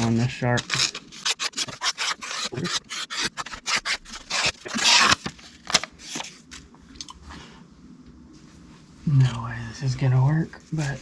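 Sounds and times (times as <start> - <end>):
knife blade scraping: 0.7 - 5.2.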